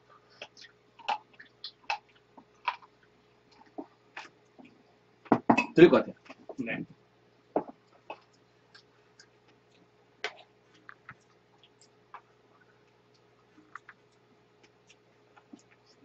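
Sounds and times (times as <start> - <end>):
crunchy chewing: 7.8 - 16.0.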